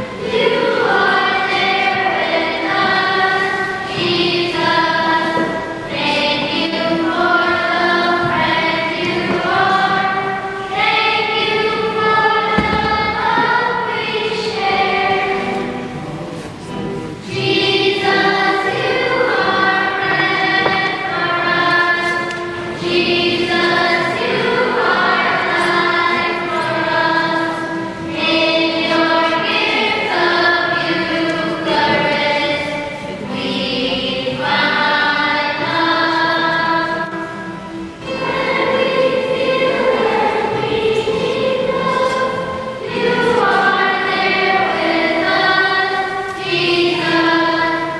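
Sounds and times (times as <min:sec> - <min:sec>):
choir singing a hymn: 0:00.0 - 0:47.9.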